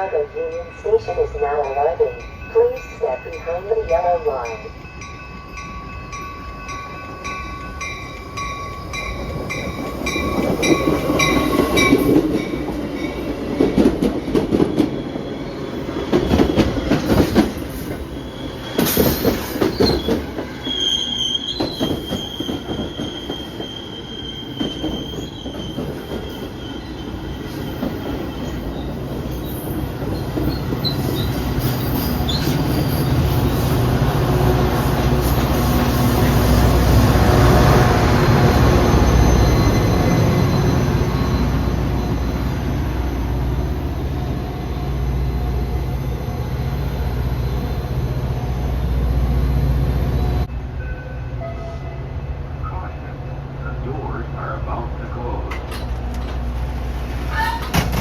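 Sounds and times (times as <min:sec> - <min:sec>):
bell ringing: 0:00.0 - 0:13.2
train cars rumbling past: 0:00.0 - 0:58.0
high wheel squeal: 0:18.1 - 0:33.7, 0:38.1 - 0:42.7, 0:57.3 - 0:57.8.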